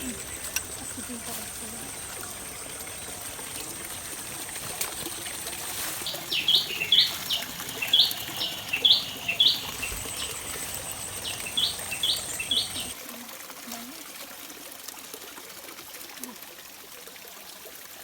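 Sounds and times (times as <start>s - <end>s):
bird chirping: 0.0s - 12.9s.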